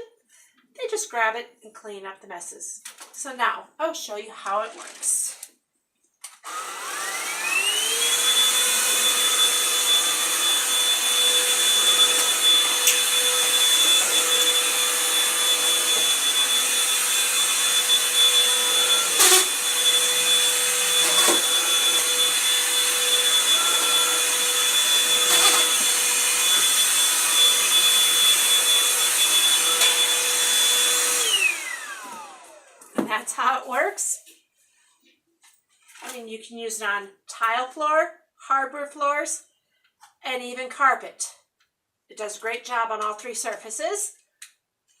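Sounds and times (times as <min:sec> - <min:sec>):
vacuum motor whine: 0:06.5 - 0:32.9.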